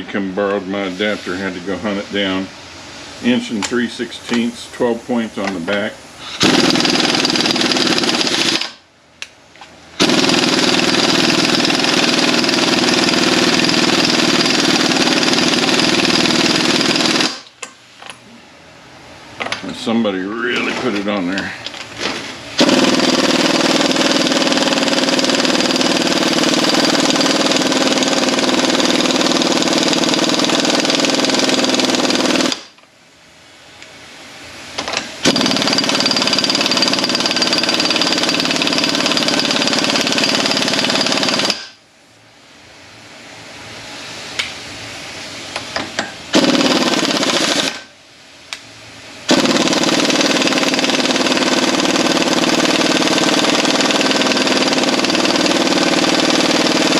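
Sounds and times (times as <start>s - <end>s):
impact wrench hammering: 6.3s - 8.8s, 22.6s - 32.7s, 34.8s - 41.8s, 45.6s - 47.9s, 49.3s - 56.9s.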